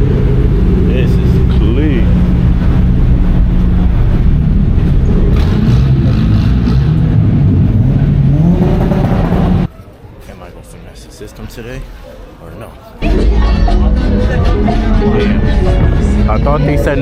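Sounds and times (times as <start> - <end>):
car engine revving: 0.0 - 9.7.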